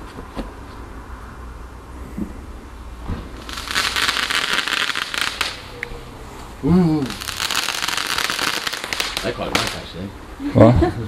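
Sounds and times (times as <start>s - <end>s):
firework crackling and fizzing: 3.2s - 5.9s, 7.0s - 10.1s.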